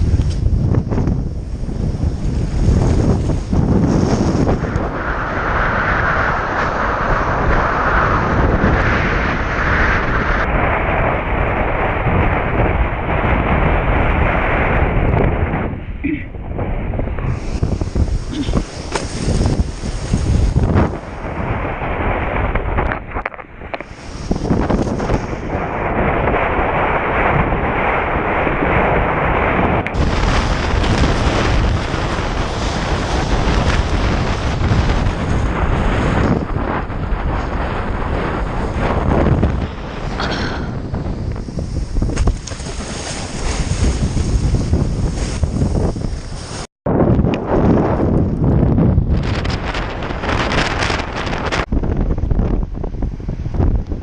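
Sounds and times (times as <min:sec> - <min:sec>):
storm wind buffeting microphone: 0:00.0 - 0:54.0.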